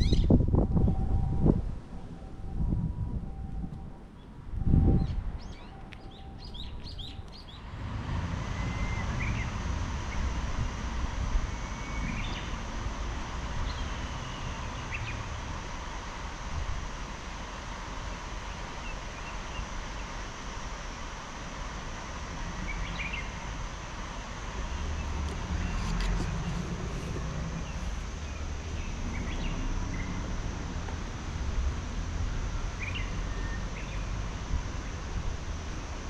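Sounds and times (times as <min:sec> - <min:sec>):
small birds chirping: 0:05.0 - 0:07.6, 0:11.5 - 0:12.6, 0:13.6 - 0:15.3, 0:24.7 - 0:30.2
steady rushing noise: 0:07.4 - 0:36.0.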